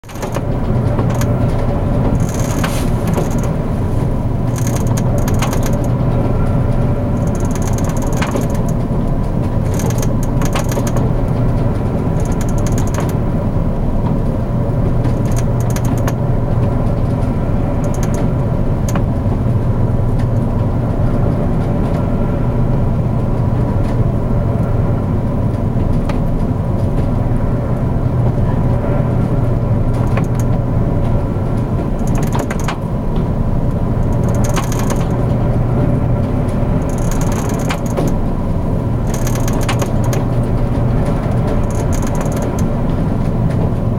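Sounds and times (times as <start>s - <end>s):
creaking and rattling fittings: 0.0s - 13.2s, 14.9s - 20.7s, 29.9s - 30.6s, 31.6s - 43.9s
ship machinery low drone: 0.0s - 43.9s.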